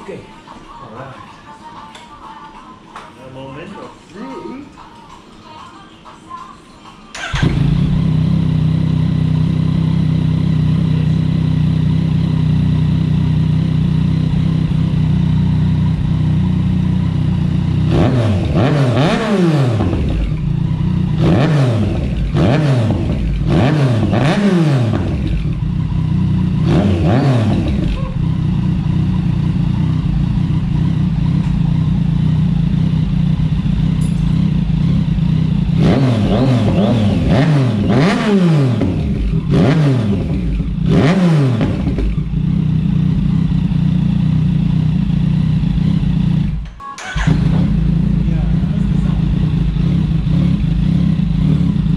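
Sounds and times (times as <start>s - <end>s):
motorcycle engine idling: 7.2s - 51.9s
motorcycle engine revving: 7.2s - 51.9s.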